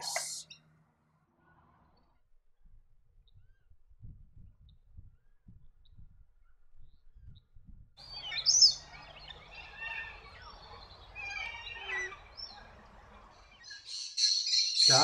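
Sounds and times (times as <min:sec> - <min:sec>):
wild birds chirping: 0:00.0 - 0:00.7, 0:08.0 - 0:15.0.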